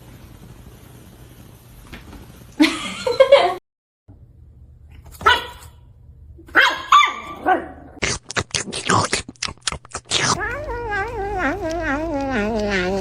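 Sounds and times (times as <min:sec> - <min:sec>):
dog barking and yelping: 0:05.2 - 0:05.6, 0:06.5 - 0:07.9.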